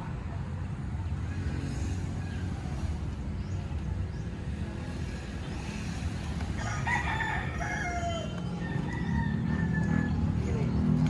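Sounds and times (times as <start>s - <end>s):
rooster crowing: 6.6s - 10.4s.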